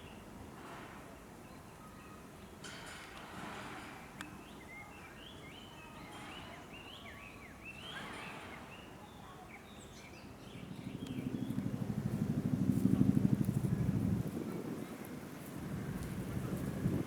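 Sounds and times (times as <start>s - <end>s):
small birds chirping: 8.7s - 11.8s.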